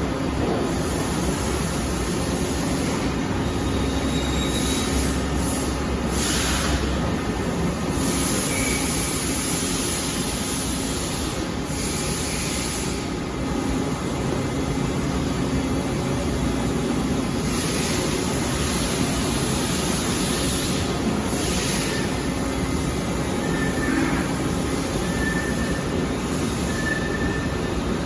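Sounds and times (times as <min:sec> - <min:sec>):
high machine hiss: 0:17.2 - 0:28.0.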